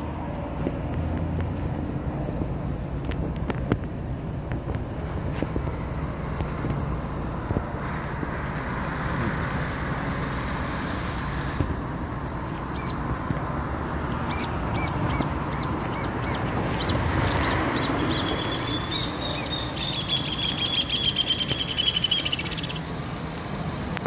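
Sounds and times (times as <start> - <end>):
low street rumble: 0.0 - 24.0
bird chirping and trilling: 12.7 - 13.0, 14.3 - 22.9.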